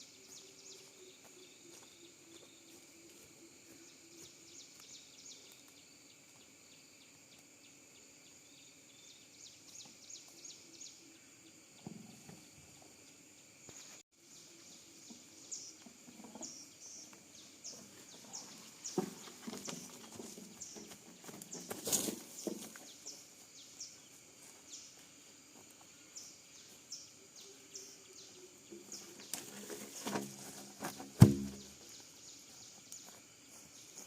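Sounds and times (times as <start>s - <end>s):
knocks and rustles: 17.7s - 23.0s, 28.7s - 32.0s.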